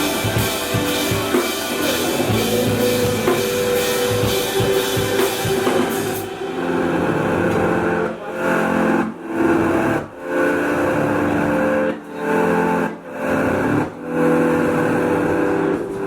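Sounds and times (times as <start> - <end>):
rock band playing chords: 0.0 - 9.2.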